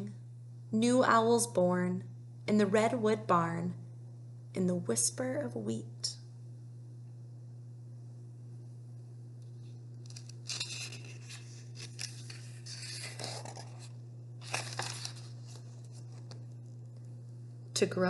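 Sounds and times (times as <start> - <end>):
steady low hum: 0.0 - 18.0
book pages rustling: 10.1 - 16.5.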